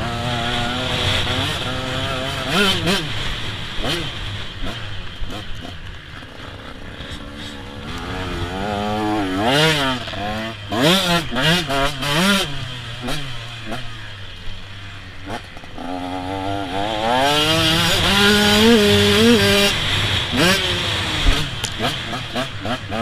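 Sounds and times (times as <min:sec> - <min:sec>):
motocross bike engine revving: 0:00.0 - 0:23.0.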